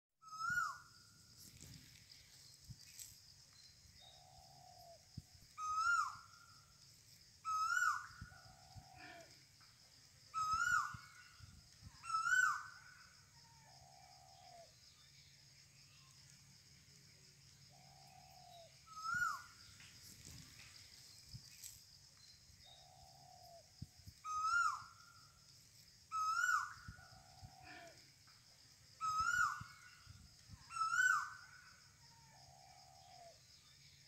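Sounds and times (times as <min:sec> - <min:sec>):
bird calling: 0:00.2 - 0:00.9, 0:05.6 - 0:06.5, 0:07.4 - 0:09.4, 0:10.3 - 0:14.7, 0:17.7 - 0:20.4, 0:24.2 - 0:25.1, 0:26.1 - 0:28.1, 0:29.0 - 0:33.1.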